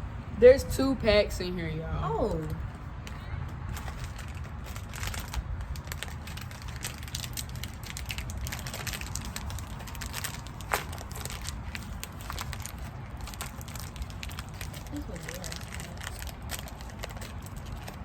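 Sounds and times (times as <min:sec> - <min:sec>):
plastic snack wrapper crinkling: 0:03.7 - 0:18.0
wrapper snapping: 0:03.7 - 0:18.0.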